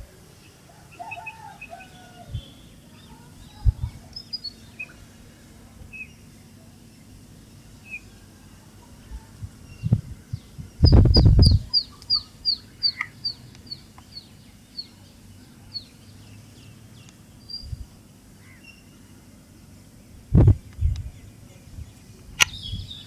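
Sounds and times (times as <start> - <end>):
bird chirps: 0.9 - 5.1, 9.7 - 17.8, 22.4 - 23.0
low thumping rumble: 3.5 - 4.1, 9.4 - 11.8, 20.2 - 23.0.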